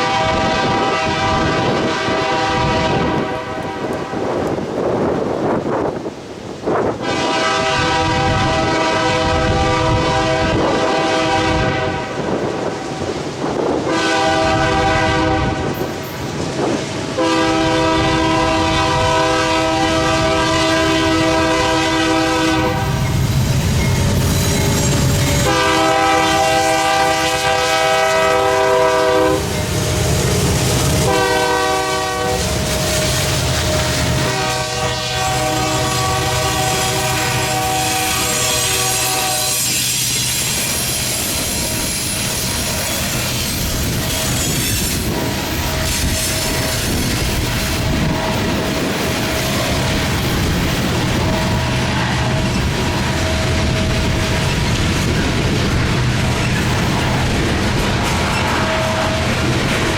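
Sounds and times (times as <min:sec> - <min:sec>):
locomotive air horn blasts: 0:00.0 - 0:04.4, 0:07.0 - 0:13.1, 0:13.9 - 0:15.8, 0:17.1 - 0:23.1, 0:24.0 - 0:48.7, 0:58.4 - 0:59.5
train rumbling: 0:00.0 - 0:59.9
wheels clacking over rail joints: 0:38.0 - 0:59.9.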